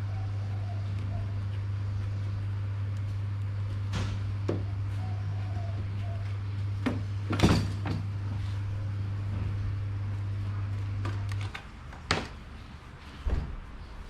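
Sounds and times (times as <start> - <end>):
steady low hum: 0.0 - 14.0
knocks and clatters of parts: 6.8 - 8.1.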